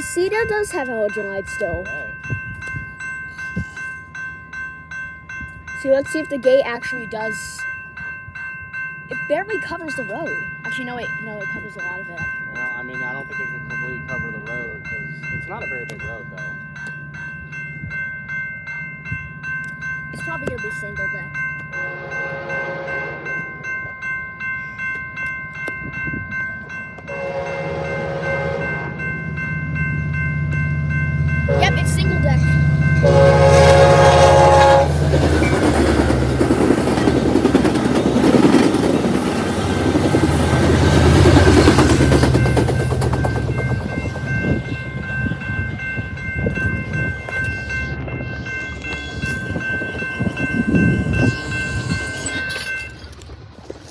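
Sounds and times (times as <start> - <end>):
level crossing warning bells: 0.0 - 53.5
diesel locomotive rumble: 8.5 - 53.5
locomotive horn: 21.8 - 23.5, 27.1 - 29.2, 31.5 - 32.0, 33.0 - 35.2
train wheels clattering: 33.0 - 47.6.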